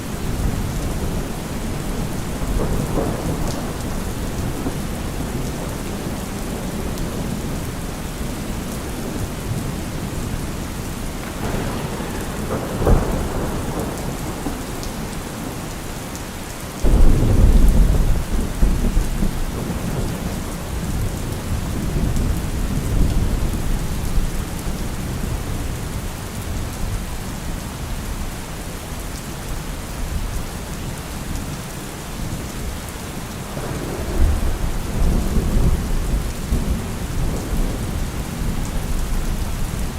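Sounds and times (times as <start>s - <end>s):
thunder rumbling: 0.0s - 25.5s, 33.4s - 39.9s
heavy rain: 0.0s - 39.9s
sharp thunder crack: 11.1s - 15.9s, 16.8s - 21.0s, 33.6s - 39.0s.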